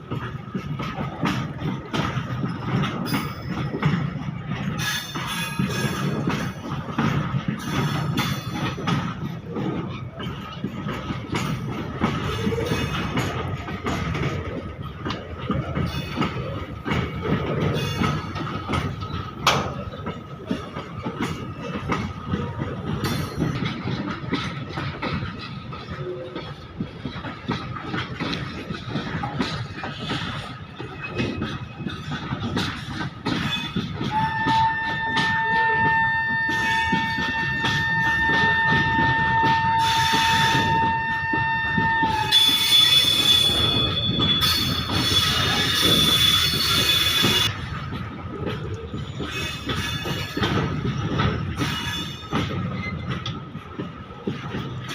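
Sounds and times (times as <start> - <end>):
train wheels clattering on rails: 0.0 - 54.9.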